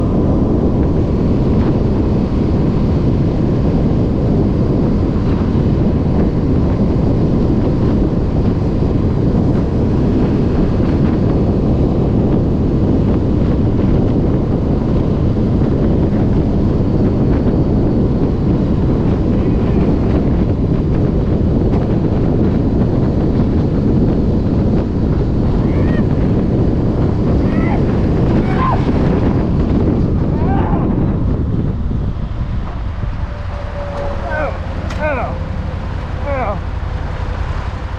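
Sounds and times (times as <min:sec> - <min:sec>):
wind buffeting microphone: 0:00.0 - 0:37.9.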